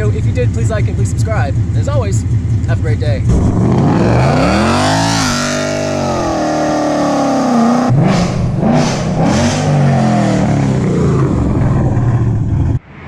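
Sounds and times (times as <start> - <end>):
engine revving: 0.0 - 13.0.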